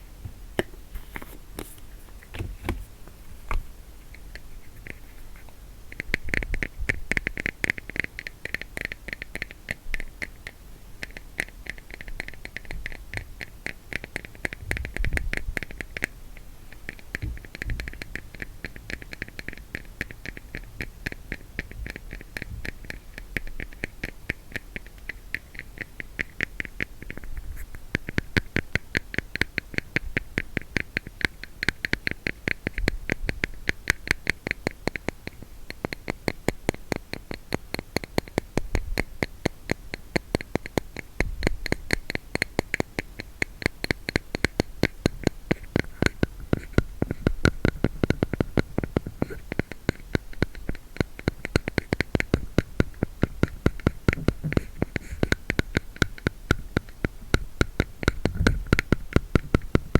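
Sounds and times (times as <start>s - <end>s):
fingers tapping plastic case: 0.0s - 2.9s, 16.8s - 59.9s.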